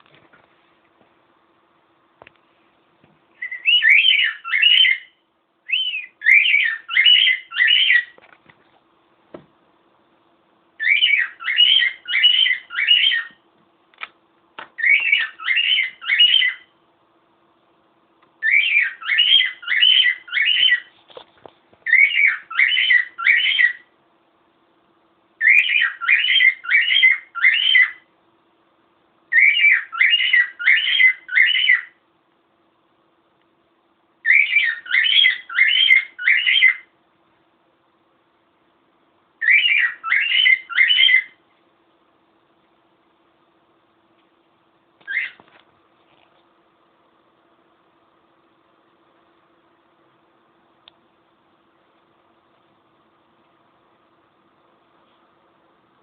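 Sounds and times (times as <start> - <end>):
cockatiel whistling: 3.4 - 5.1, 5.7 - 8.2, 10.8 - 13.4, 14.8 - 16.7, 18.4 - 20.9, 21.8 - 23.8, 25.4 - 28.0, 29.3 - 32.0, 34.2 - 36.9, 39.4 - 41.4, 45.0 - 45.4.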